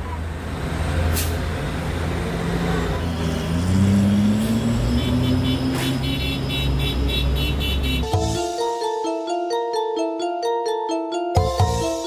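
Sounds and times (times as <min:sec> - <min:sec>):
diesel truck engine revving: 0:00.2 - 0:08.1
quick chiming tune: 0:08.0 - 0:12.0.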